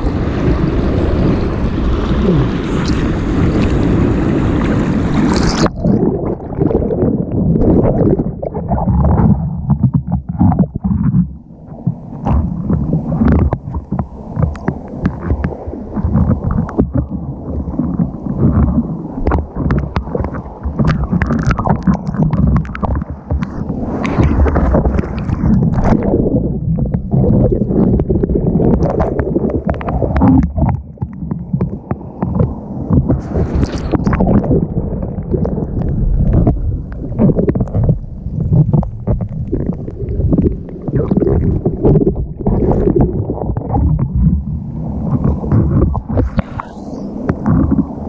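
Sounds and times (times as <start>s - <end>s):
seawater rushing and sloshing: 0.0s - 48.0s
water splash: 0.0s - 48.0s.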